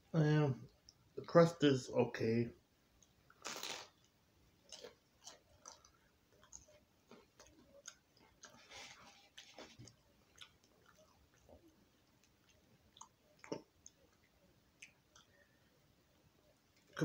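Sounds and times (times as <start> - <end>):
chewing crunchy food: 3.0 - 15.6.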